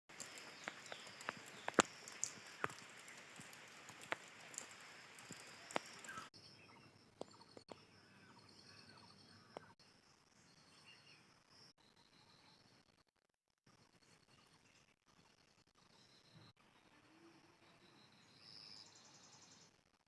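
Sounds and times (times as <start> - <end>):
sharp clicks: 0.1 - 6.3.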